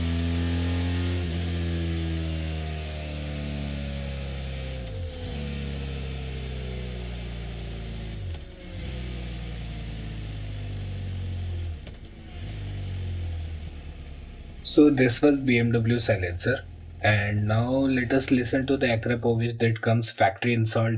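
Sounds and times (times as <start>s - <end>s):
motorcycle engine idling: 13.4s - 19.4s.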